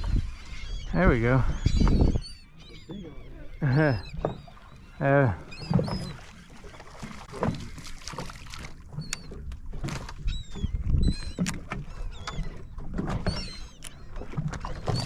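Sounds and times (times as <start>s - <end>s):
seabirds crying: 0.0s - 9.5s, 10.1s - 15.0s
knocks from boat: 4.1s - 4.5s, 7.1s - 10.7s.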